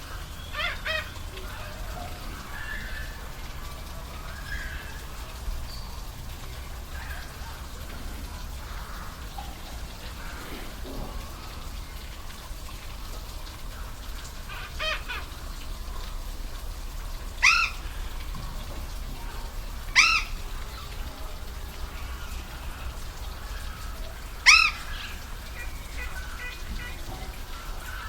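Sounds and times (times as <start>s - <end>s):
bird calling: 0.0s - 7.7s, 17.4s - 18.6s, 19.2s - 21.3s, 22.0s - 28.0s.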